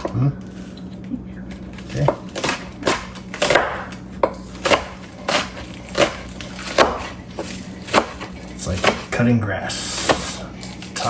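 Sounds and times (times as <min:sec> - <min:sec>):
knife chopping on cutting board: 0:01.9 - 0:09.2, 0:09.8 - 0:10.8.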